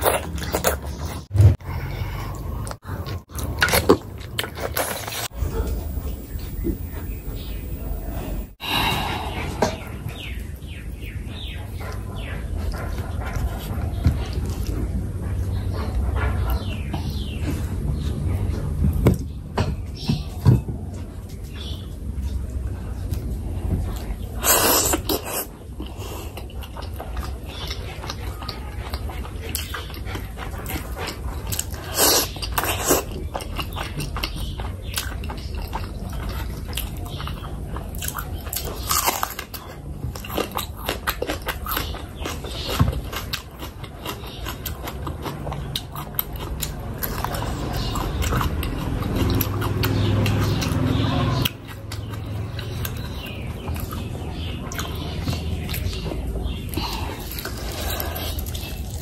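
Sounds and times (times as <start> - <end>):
chewing and wet lip-smacking: 23.0 - 59.0.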